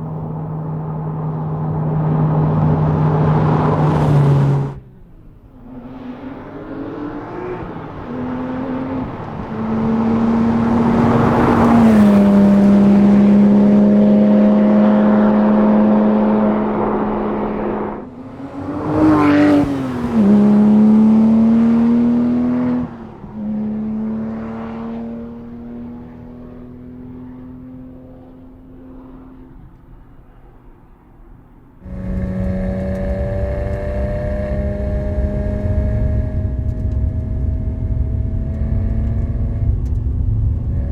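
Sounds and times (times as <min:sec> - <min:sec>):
car engine running under load: 0:00.0 - 0:06.4, 0:28.1 - 0:40.9.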